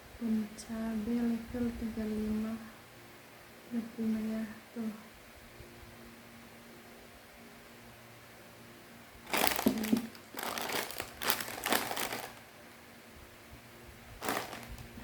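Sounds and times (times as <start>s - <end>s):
plastic packaging crinkling: 9.2s - 12.5s, 14.2s - 15.0s.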